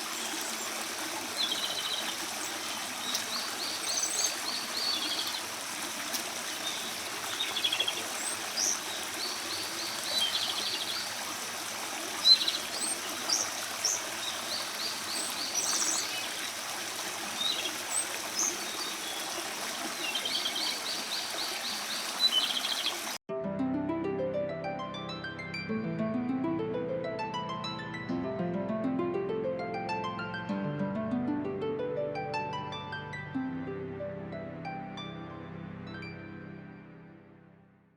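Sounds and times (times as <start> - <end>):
running water: 0.0 - 23.2
bird singing with rattling trill: 1.4 - 5.4, 6.6 - 11.1, 12.2 - 16.5, 20.0 - 23.2.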